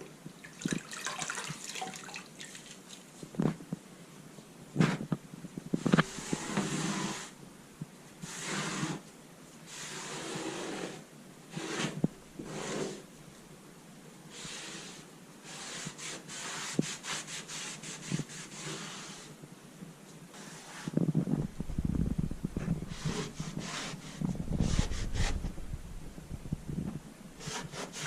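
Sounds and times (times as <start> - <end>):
rubbing or scraping strokes: 5.7 - 7.4, 8.2 - 9.1, 9.7 - 13.1, 14.3 - 19.3, 20.3 - 28.0.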